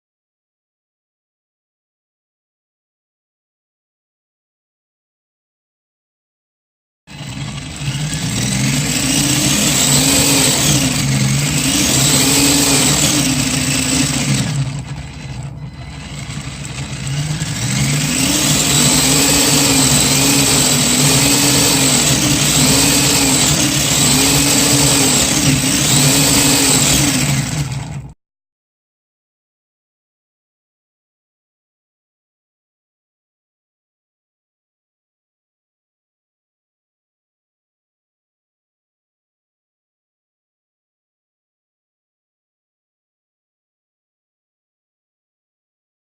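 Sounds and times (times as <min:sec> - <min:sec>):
motor pitch rising and falling: 0:07.1 - 0:28.2.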